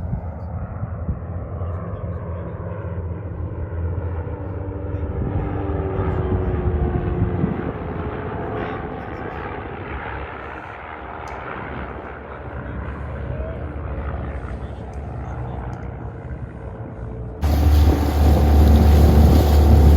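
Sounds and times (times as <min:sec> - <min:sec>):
outboard motor droning: 0:14.1 - 0:19.9.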